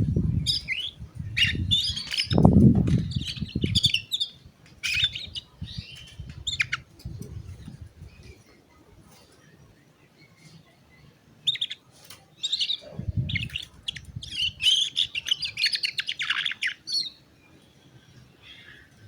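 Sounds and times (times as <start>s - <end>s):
canary chirping and trilling: 0.1s - 8.4s, 11.4s - 18.8s.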